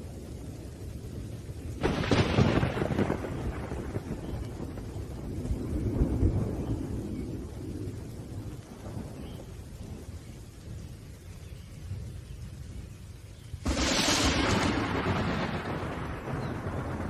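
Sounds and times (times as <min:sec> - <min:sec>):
low rumble of thunder: 0:00.0 - 0:17.0
rain: 0:00.0 - 0:17.0
sharp thunderclap: 0:01.8 - 0:09.4, 0:13.6 - 0:17.0.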